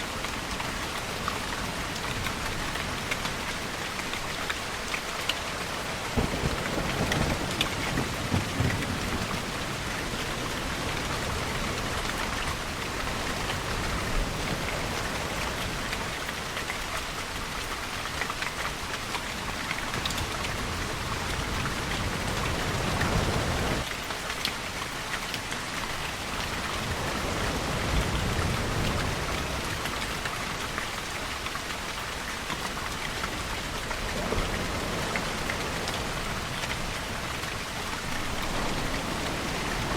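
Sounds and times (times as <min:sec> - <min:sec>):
steady rainfall: 0:00.0 - 0:39.9
distant thunder rumbles: 0:06.1 - 0:12.0.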